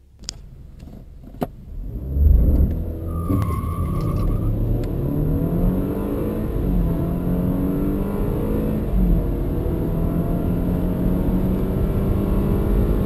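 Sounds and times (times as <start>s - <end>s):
car engine accelerating: 1.2s - 13.0s.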